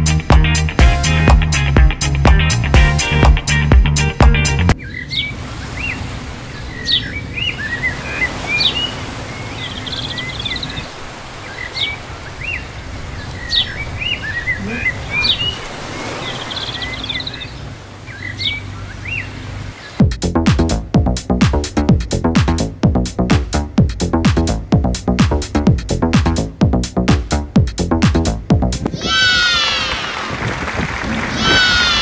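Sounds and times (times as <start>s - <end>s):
music: 0.0s - 4.8s, 20.0s - 28.9s
birds chirping and trilling: 4.8s - 20.0s, 28.9s - 30.1s, 31.2s - 32.0s
low background rumble: 17.7s - 29.3s.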